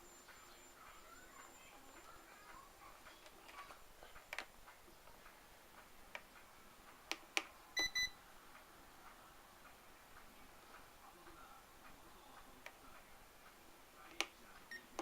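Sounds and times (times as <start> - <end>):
electronic beeps: 7.8 - 8.2.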